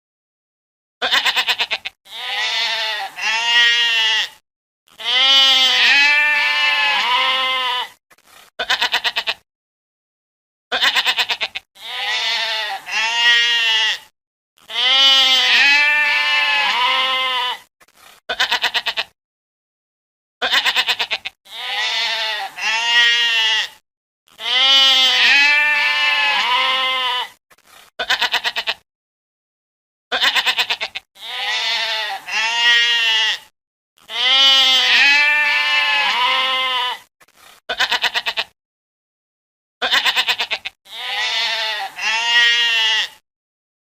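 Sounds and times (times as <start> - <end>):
goats bleating: 1.0 - 8.0, 8.6 - 9.4, 10.7 - 17.7, 18.3 - 19.1, 20.4 - 27.4, 28.0 - 28.8, 30.1 - 37.1, 37.7 - 38.6, 39.8 - 43.2.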